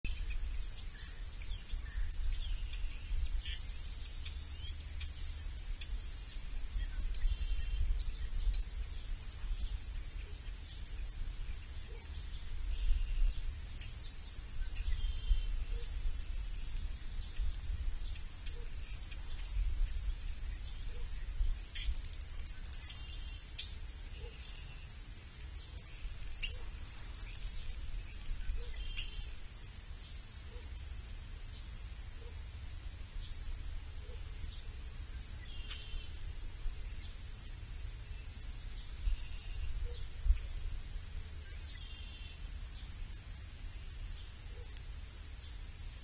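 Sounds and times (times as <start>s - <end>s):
low outdoor rumble: 0.0s - 46.0s
wild birds chirping: 0.0s - 46.0s.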